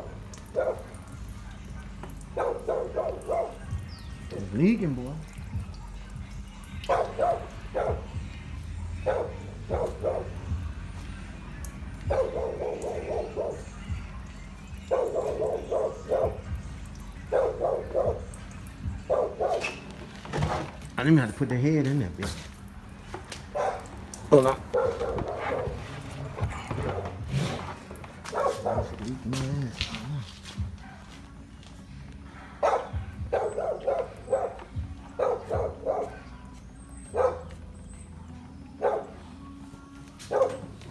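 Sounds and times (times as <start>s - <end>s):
dog barking: 0.0s - 4.5s, 6.7s - 10.7s, 12.0s - 20.7s, 23.3s - 31.3s, 32.3s - 37.8s, 38.6s - 39.5s, 40.2s - 40.9s.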